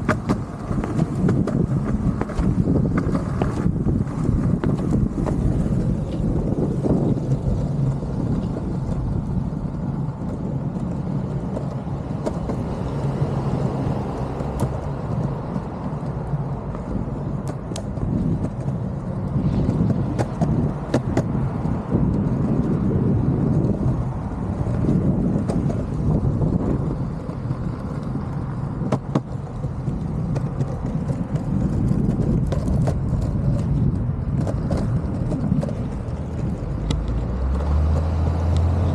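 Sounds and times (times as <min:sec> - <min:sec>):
skateboard wheels rolling on pavement: 0:00.0 - 0:38.9
wheels clicking over cracks: 0:00.0 - 0:38.9.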